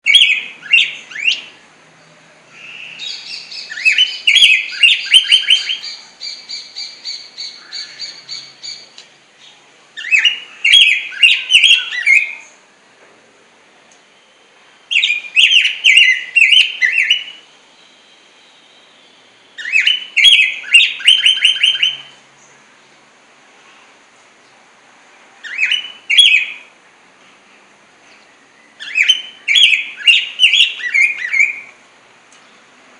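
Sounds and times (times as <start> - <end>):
bird singing whistled phrases: 0.0 - 1.6, 2.5 - 8.8, 10.0 - 12.6, 14.2 - 22.2, 25.4 - 26.7, 28.3 - 31.8.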